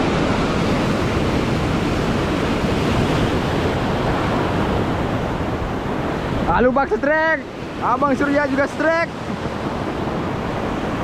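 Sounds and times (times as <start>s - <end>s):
wind noise on microphone: 0.0s - 8.3s
sea waves washing on reef: 0.0s - 11.0s.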